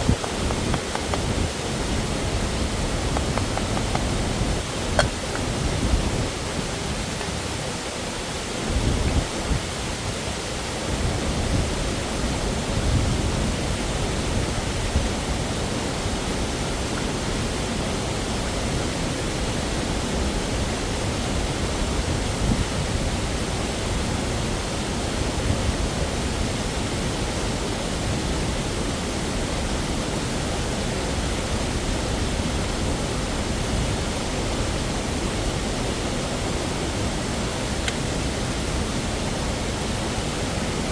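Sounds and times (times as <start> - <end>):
waterfall rushing: 0.0 - 22.3, 22.9 - 40.9.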